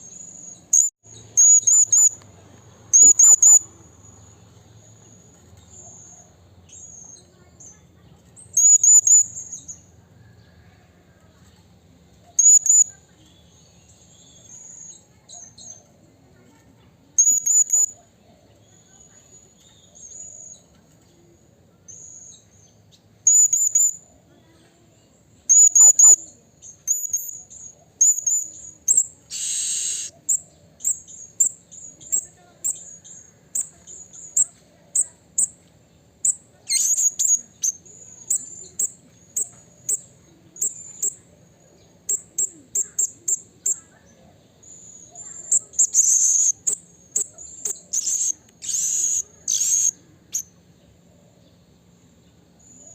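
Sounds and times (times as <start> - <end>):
harsh hissy sound: 29.3 - 30.1
parrot giving high thin calls: 29.3 - 30.2.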